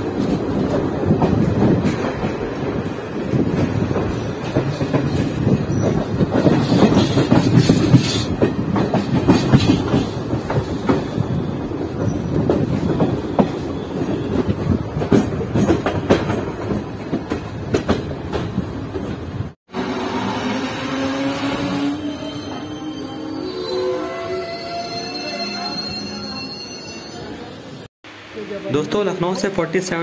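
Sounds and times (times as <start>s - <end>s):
train wheels rumbling on rails: 0.0s - 22.9s.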